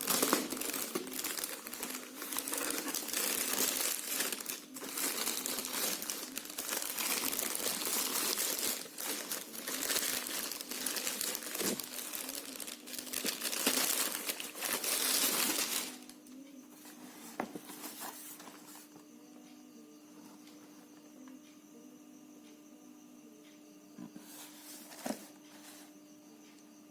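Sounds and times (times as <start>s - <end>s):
packaging crinkling: 0.0s - 16.2s.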